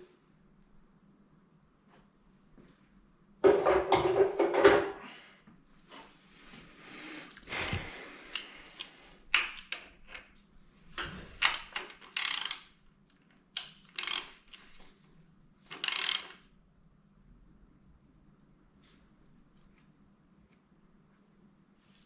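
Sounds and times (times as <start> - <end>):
tools and metal parts clinking: 8.4 - 10.3, 11.3 - 12.6, 13.6 - 14.8, 15.7 - 16.4.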